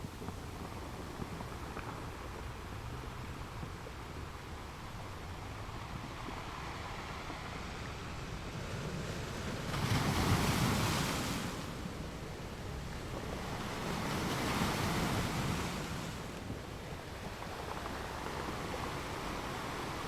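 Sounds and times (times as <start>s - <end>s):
surf hiss: 0.0s - 20.0s
sea waves breaking on shore: 6.2s - 20.0s.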